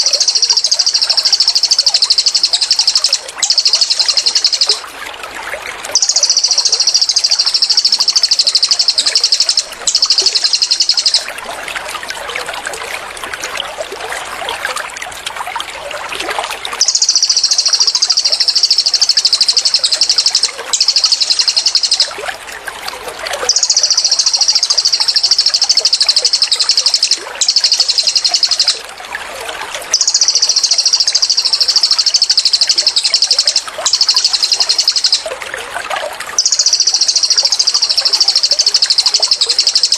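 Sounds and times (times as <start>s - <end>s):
soft bird chirps: 0.0s - 4.9s, 5.9s - 11.4s, 16.8s - 22.2s, 23.4s - 28.8s, 29.9s - 35.4s, 36.4s - 39.9s
songbird buzzing trills: 0.0s - 4.9s, 5.9s - 11.4s
trickling water: 0.0s - 39.9s.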